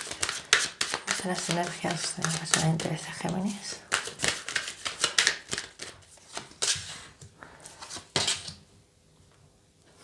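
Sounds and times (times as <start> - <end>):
cards being shuffled: 0.0 - 6.9.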